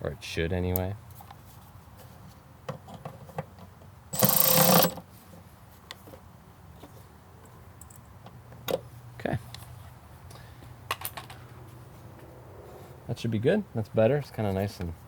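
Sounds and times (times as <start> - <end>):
rapid ratcheting rasp: 4.2 - 5.0.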